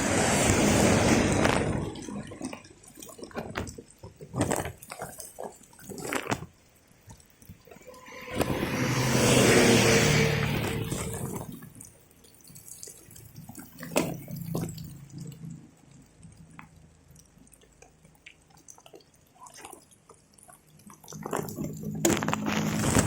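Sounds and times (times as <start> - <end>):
vehicle passing: 0.0 - 2.0, 8.0 - 11.4
water dripping: 0.3 - 23.0.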